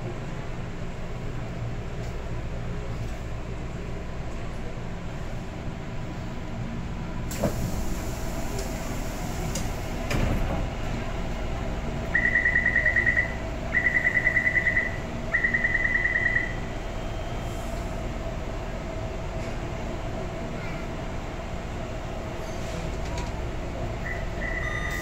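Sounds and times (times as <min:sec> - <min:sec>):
train hum: 0:00.0 - 0:25.0
rapid high door warning beeps: 0:12.2 - 0:17.4, 0:24.0 - 0:25.0.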